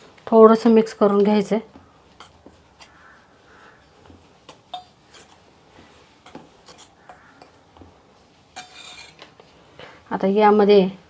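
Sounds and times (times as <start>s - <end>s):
spoon scraping in a bowl: 2.1s - 3.9s, 4.5s - 5.5s, 6.2s - 7.6s, 8.5s - 9.3s.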